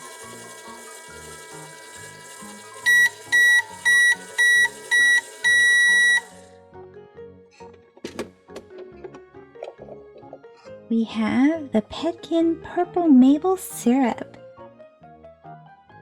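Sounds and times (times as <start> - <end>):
microwave timer beeping: 0.0 - 6.5
light background music: 0.0 - 16.0.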